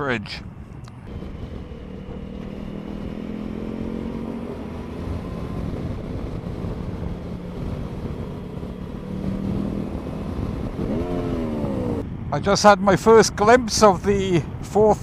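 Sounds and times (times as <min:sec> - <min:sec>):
wind rumble on microphone: 0:00.2 - 0:15.0
motorcycle engine running: 0:01.0 - 0:12.0.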